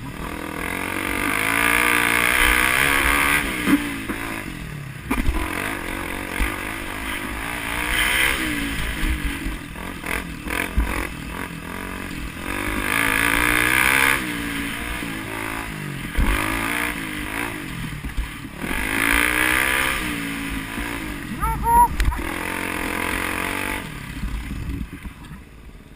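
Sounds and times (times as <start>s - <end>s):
vehicle engine revving: 0.0s - 24.9s.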